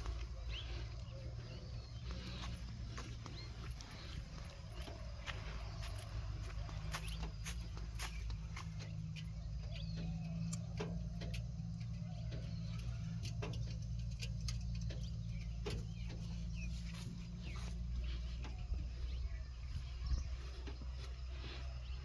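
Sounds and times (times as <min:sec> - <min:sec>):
diesel engine running at low revs: 0:00.0 - 0:22.0
sharp clicks and ticks: 0:07.2 - 0:16.4.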